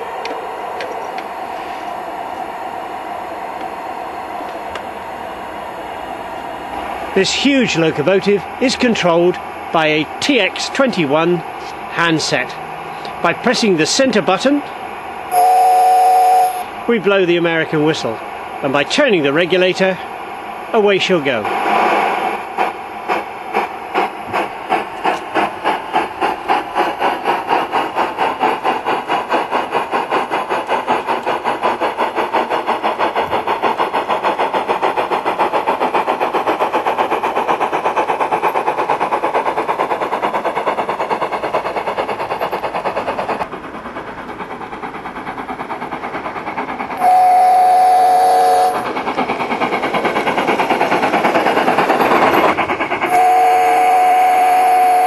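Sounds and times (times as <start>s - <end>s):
steam locomotive exhaust chuffing: 0.0s - 55.0s
steam whistle blast: 15.3s - 16.6s, 47.0s - 48.8s, 53.1s - 55.0s.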